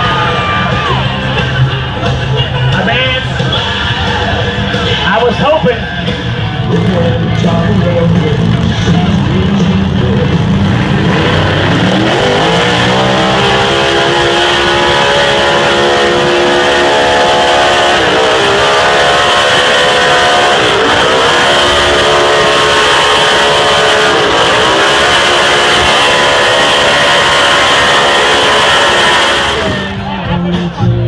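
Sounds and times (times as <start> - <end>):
truck engine running under load: 5.9 - 30.2.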